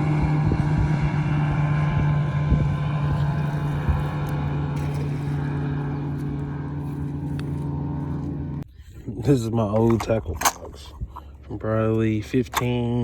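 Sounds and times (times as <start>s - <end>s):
motorboat engine running: 0.0s - 9.0s.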